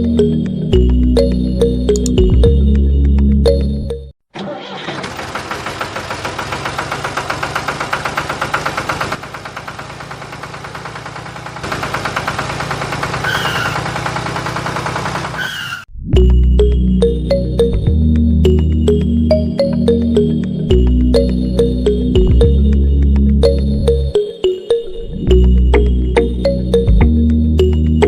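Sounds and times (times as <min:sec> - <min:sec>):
small motor rattling: 0:04.8 - 0:15.6.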